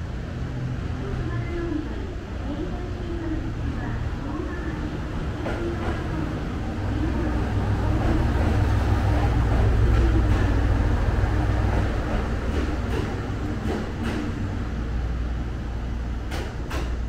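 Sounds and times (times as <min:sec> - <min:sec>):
electric train running rumble: 0:00.0 - 0:17.0.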